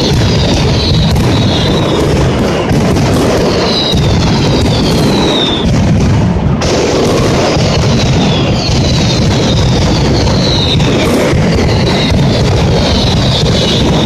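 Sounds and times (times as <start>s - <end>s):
firecracker bangs and booms: 0.0s - 14.0s
whistling fireworks: 0.0s - 14.0s.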